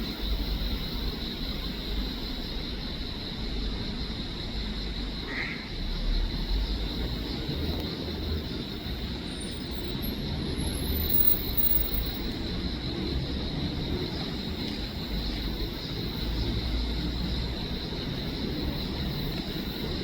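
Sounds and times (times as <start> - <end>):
distant traffic rumble: 0.0 - 20.0.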